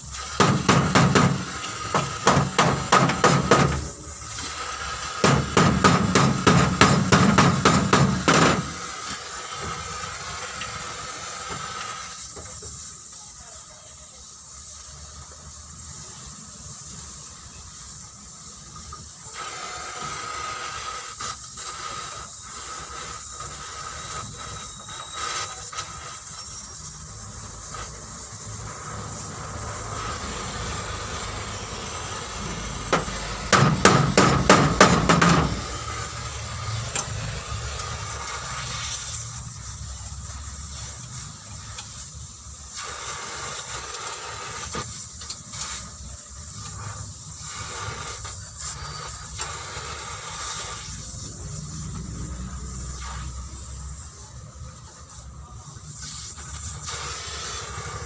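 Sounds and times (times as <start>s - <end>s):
hissing workshop noise: 0.0s - 58.0s
rapid hammer knocks: 0.4s - 1.4s, 2.0s - 3.8s, 5.2s - 8.7s, 32.9s - 35.6s.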